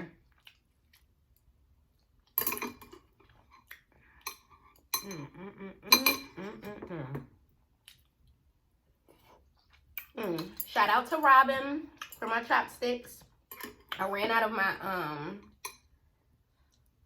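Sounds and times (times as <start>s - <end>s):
utensils clinking against bowl: 2.4s - 3.1s, 4.2s - 5.2s, 5.9s - 6.4s, 13.5s - 14.0s
person making wordless sounds: 5.0s - 7.3s.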